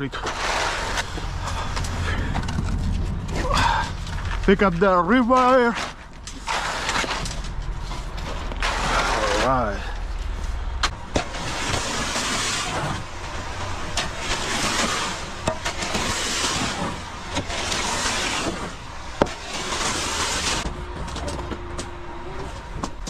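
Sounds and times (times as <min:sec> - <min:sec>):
wet concrete sliding down chute: 0:00.0 - 0:02.6, 0:03.3 - 0:07.4, 0:08.4 - 0:09.9, 0:11.2 - 0:20.7
truck rumbling: 0:00.0 - 0:23.0.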